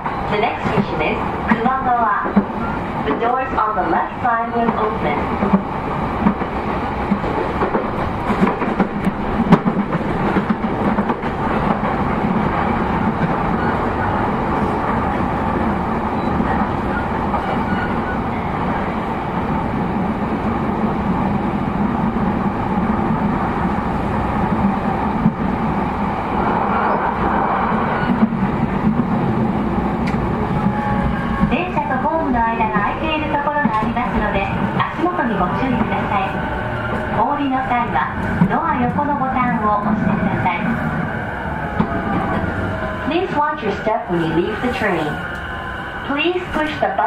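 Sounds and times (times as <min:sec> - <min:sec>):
train motors and wheels rumbling: 0:00.0 - 0:47.0
light rail clicks: 0:30.0 - 0:30.3.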